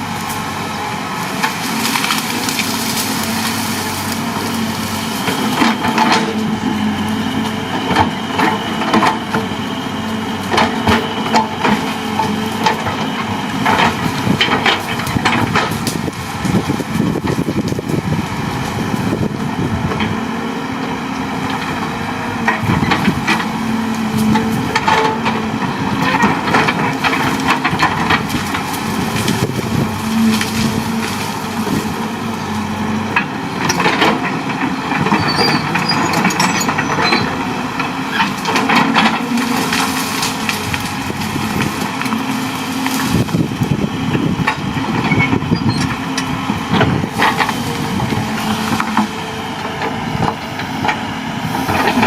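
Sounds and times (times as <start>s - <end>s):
excavator engine running: 0.0s - 52.0s
wood cracking and splintering: 1.3s - 6.7s, 10.5s - 18.1s, 22.5s - 32.6s, 33.2s - 46.0s, 46.8s - 51.0s.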